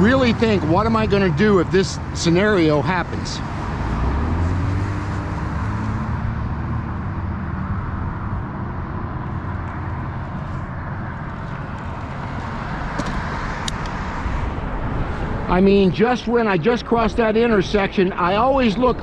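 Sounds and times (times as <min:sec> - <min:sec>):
passing vehicle engine hum: 0:00.0 - 0:17.6
road noise: 0:00.0 - 0:19.0
rushing wind: 0:00.0 - 0:19.0.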